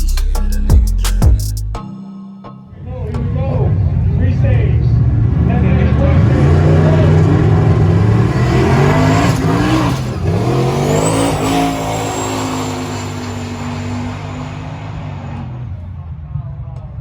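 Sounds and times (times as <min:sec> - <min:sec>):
high engine whine: 0:03.1 - 0:16.4
truck engine revving: 0:03.2 - 0:16.4.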